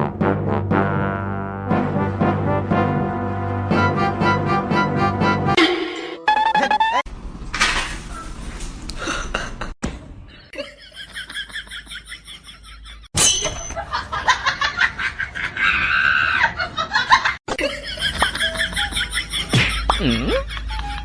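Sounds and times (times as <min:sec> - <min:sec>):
people laughing: 0:13.8 - 0:21.0.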